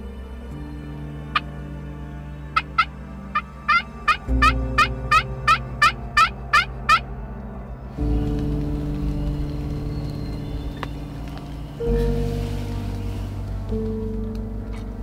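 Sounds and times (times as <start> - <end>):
background music: 0.0 - 15.0
turkey calling: 3.7 - 7.0.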